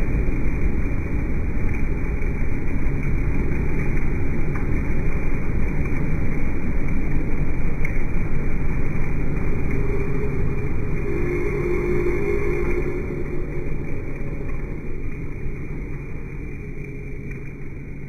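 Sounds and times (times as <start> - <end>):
loud machine noise: 9.4 - 15.0.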